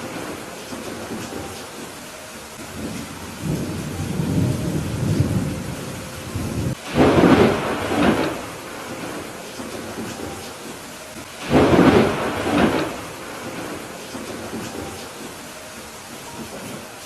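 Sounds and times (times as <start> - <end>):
steady rain: 0.0 - 17.0
thunder rumbling and clapping: 2.8 - 10.4, 11.4 - 15.3.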